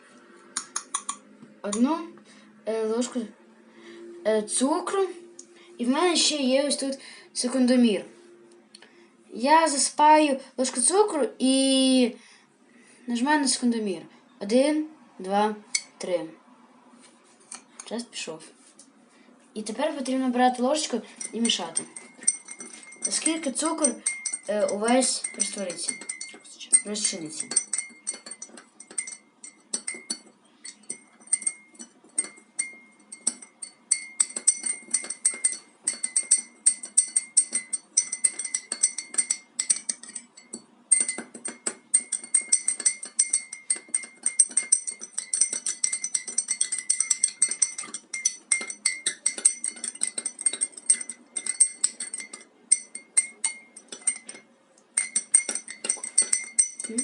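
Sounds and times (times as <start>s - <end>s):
teaspoon clinking in a mug: 21.2s - 57.0s.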